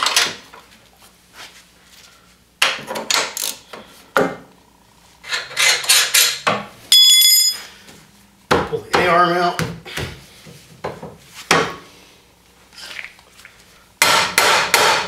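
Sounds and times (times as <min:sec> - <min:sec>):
high-pitched ringing tone: 0:06.9 - 0:07.9.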